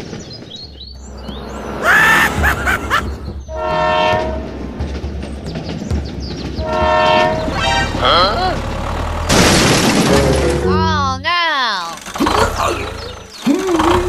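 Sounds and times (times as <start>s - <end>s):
low engine rumble: 0.0s - 14.0s
horn blasts: 3.4s - 4.6s, 6.6s - 8.4s.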